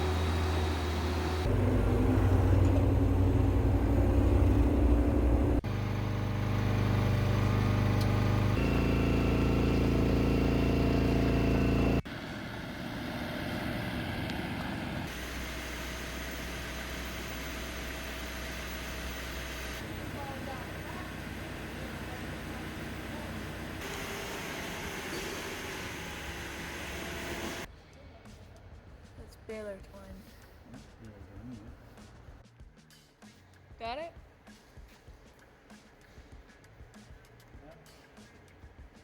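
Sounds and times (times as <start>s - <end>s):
engines running: 0.0s - 27.7s.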